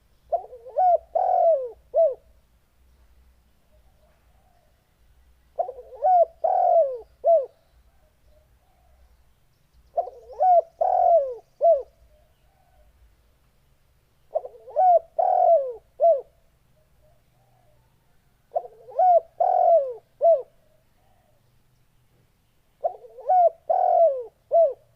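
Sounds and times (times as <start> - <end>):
dove cooing: 0.3 - 2.4, 5.6 - 9.0, 9.9 - 12.9, 14.3 - 21.5, 22.8 - 24.9.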